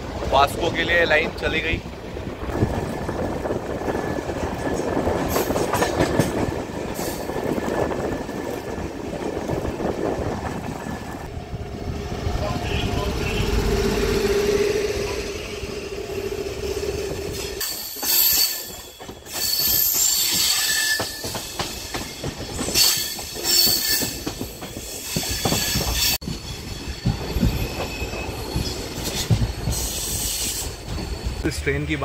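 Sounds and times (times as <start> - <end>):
wheels clacking over rail joints: 0.1 - 11.2
high-pitched wheel squeal: 14.2 - 21.6.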